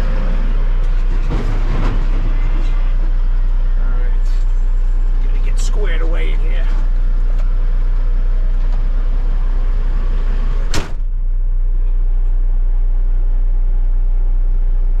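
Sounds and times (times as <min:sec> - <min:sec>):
diesel truck engine idling: 0:00.0 - 0:15.0
cab door slamming: 0:10.6 - 0:11.1.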